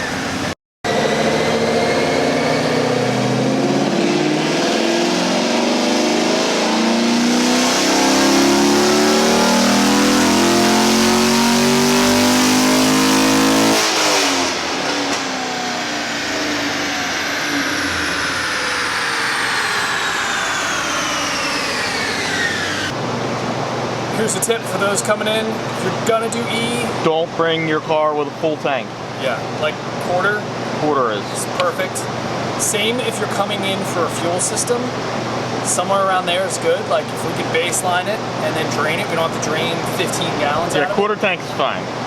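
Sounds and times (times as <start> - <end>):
falling whine of coasting: 0.0 - 27.0
car engine revving: 0.1 - 23.0, 31.4 - 42.0.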